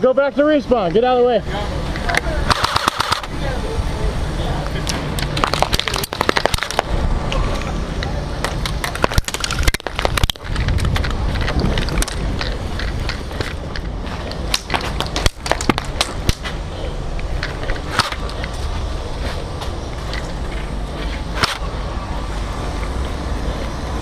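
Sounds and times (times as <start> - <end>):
airsoft gun shots: 2.4 - 3.3
low rumble of microphone noise: 3.3 - 24.0.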